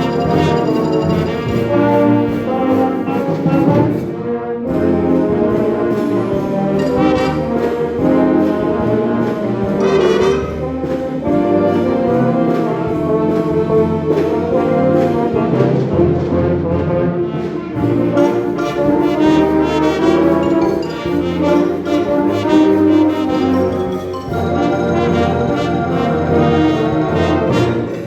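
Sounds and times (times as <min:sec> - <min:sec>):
percussion beat: 0:00.0 - 0:03.7, 0:06.7 - 0:08.9, 0:09.6 - 0:11.4, 0:17.9 - 0:28.0
brass chords: 0:00.0 - 0:28.0.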